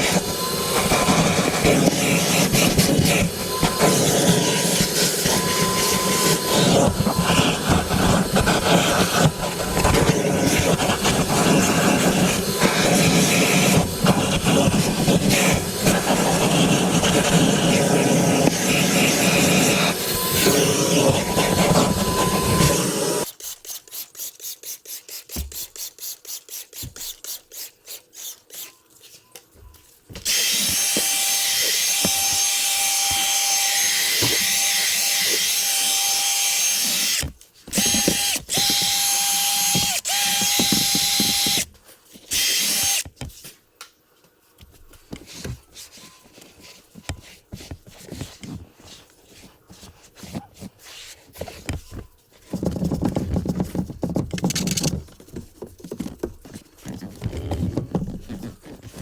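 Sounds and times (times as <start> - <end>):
power tool hissing and whining: 0.0 - 23.3, 30.3 - 41.6, 42.3 - 43.0
rubbing and clicking handling: 44.3 - 59.0.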